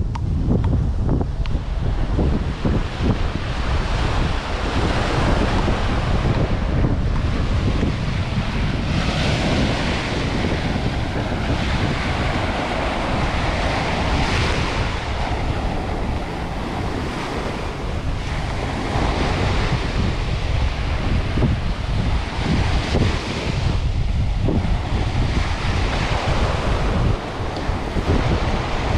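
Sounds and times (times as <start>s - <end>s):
wind buffeting microphone: 0.0s - 28.9s
sea waves washing onto beach: 1.3s - 28.9s.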